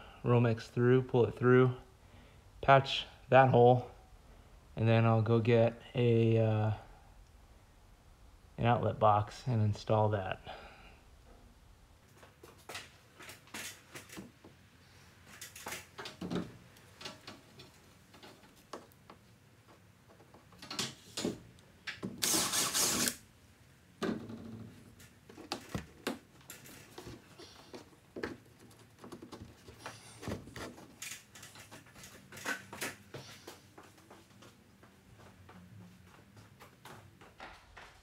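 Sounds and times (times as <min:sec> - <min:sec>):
cordless drill boring into ceiling: 0:22.2 - 0:23.2
handling knocks and clicks: 0:24.0 - 0:33.1.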